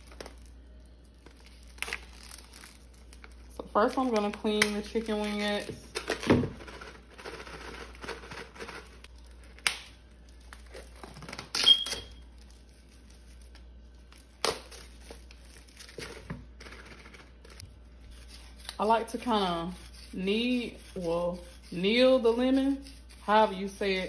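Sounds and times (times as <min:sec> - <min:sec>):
plastic film crinkling and tearing: 0:00.0 - 0:18.9
short high squeak: 0:11.6 - 0:12.2.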